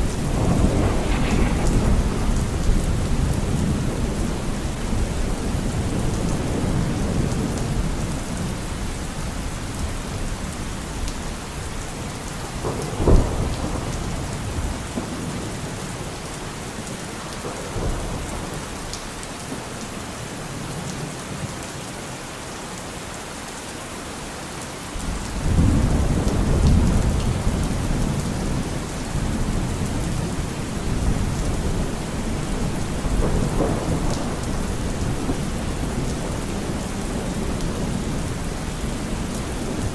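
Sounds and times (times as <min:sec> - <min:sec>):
sharp thunder crack: 0:00.0 - 0:06.0
rolling thunder: 0:00.0 - 0:08.5, 0:25.0 - 0:39.9
steady rain: 0:00.0 - 0:39.9.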